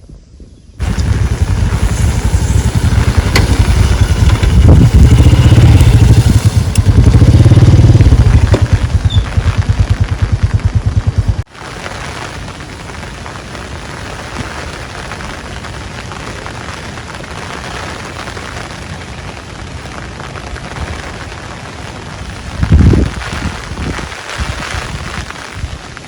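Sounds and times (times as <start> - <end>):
loud low rumble: 0.8 - 11.5
heavy rain falling: 0.8 - 26.0.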